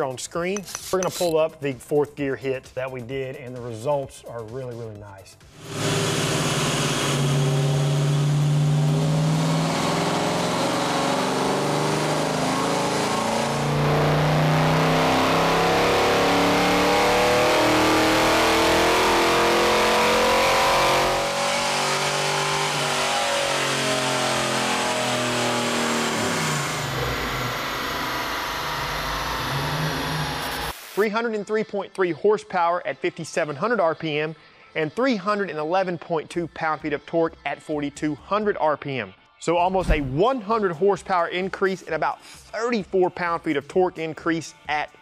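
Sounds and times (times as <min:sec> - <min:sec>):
car engine revving on dyno: 0:05.5 - 0:30.8.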